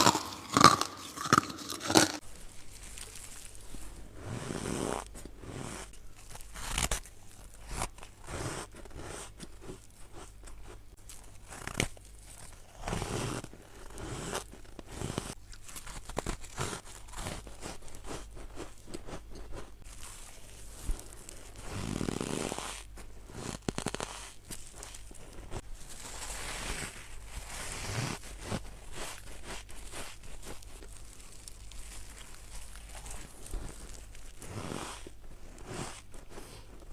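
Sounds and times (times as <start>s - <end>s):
crunching of freezer frost: 0.0s - 4.1s, 19.8s - 36.9s.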